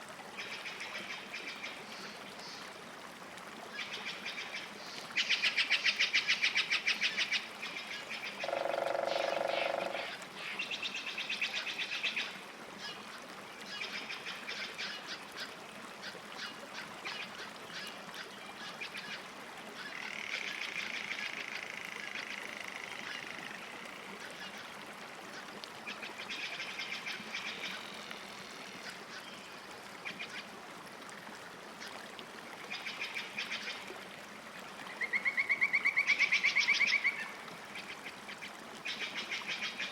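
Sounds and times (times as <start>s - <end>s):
lower longer animal call: 8.4s - 10.2s.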